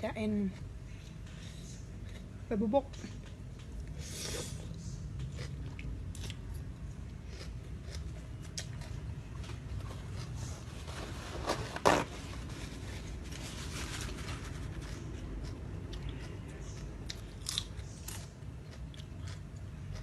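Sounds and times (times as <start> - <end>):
steady low hum: 0.0 - 20.0
person chewing crunchy food: 3.8 - 11.2, 14.4 - 20.0.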